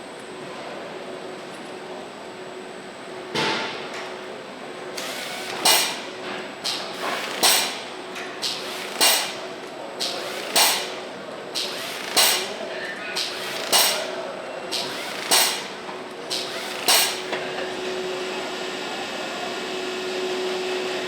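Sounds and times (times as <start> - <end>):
steady machine hum: 4.4 - 20.9
metallic clanks of machinery: 5.0 - 11.0, 11.6 - 12.6, 13.2 - 17.4.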